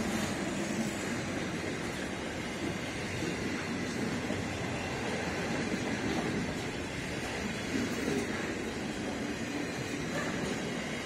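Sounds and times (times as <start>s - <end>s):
steel wheels running on rails: 0.0s - 11.0s.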